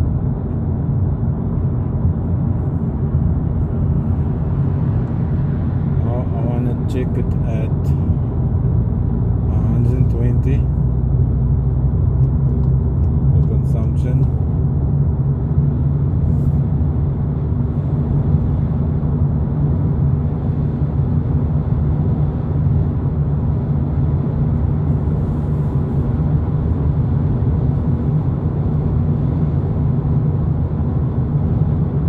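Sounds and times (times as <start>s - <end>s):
car engine hum: 0.0s - 32.0s.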